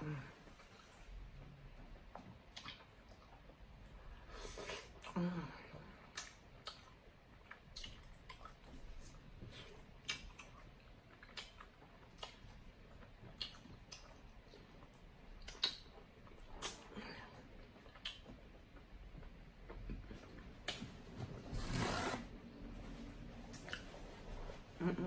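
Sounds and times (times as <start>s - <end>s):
wet mouth clicks and smacks: 2.5s - 3.5s, 6.1s - 8.7s, 10.0s - 12.6s, 13.2s - 14.2s, 14.9s - 16.9s, 17.8s - 18.4s.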